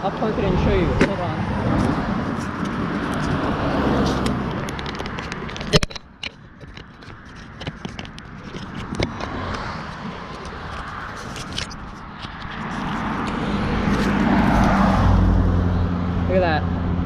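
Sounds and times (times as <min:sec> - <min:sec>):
bicycle clicks and scrapes: 0:01.0 - 0:15.2
bicycle rolling and rustling: 0:01.6 - 0:15.3.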